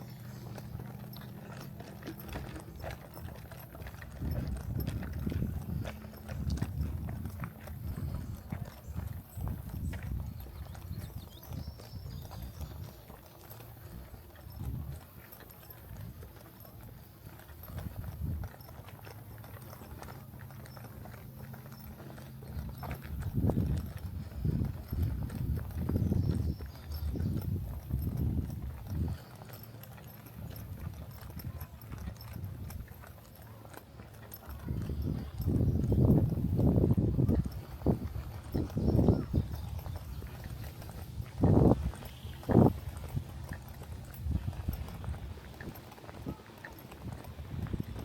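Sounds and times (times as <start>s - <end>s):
footsteps on a trail: 0.0s - 48.0s.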